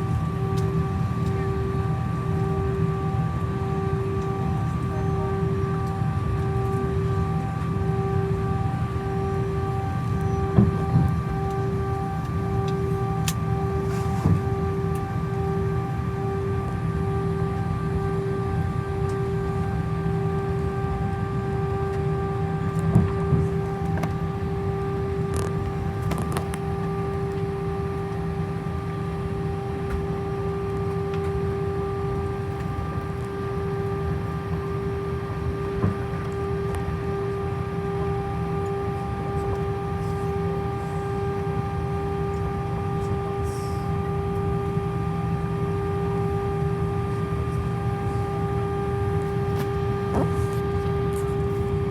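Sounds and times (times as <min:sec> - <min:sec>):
constant whine: 0:00.0 - 0:51.9
engine and air conditioning hum: 0:00.0 - 0:51.9.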